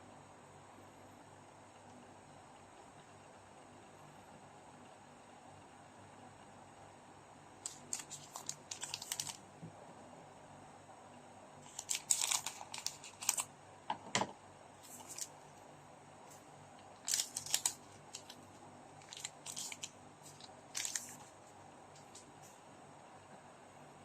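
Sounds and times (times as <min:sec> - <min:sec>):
cards crinkling and rustling: 0:07.6 - 0:09.4, 0:11.6 - 0:13.5, 0:14.8 - 0:15.4, 0:17.0 - 0:21.3.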